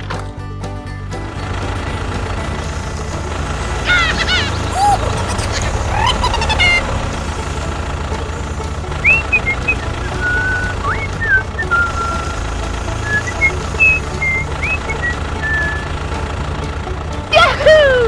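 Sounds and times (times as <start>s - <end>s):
small engine puttering: 0.0s - 18.0s
high whistling chirps: 9.0s - 16.2s.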